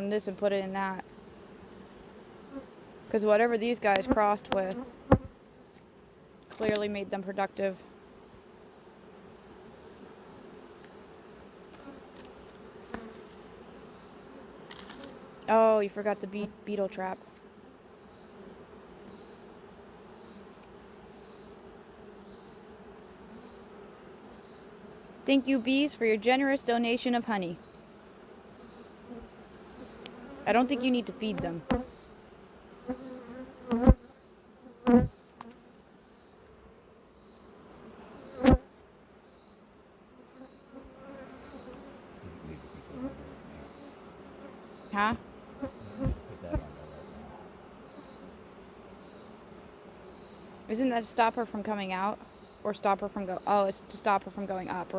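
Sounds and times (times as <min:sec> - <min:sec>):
honeybees buzzing: 0:00.0 - 0:54.9
loud short thumps: 0:45.9 - 0:46.7.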